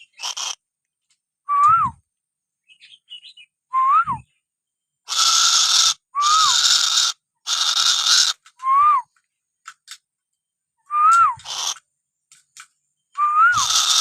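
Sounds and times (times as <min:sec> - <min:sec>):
bird hissing bursts: 0:00.2 - 0:00.6, 0:05.1 - 0:08.4, 0:11.4 - 0:11.8, 0:13.6 - 0:14.0.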